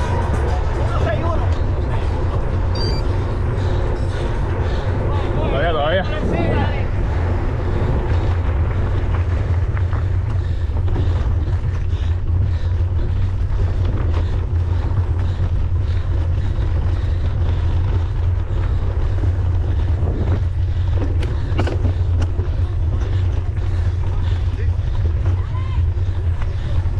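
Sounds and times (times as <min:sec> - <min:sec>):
wind buffeting microphone: 0:00.0 - 0:26.9
bike knocks and rattles: 0:08.0 - 0:26.8.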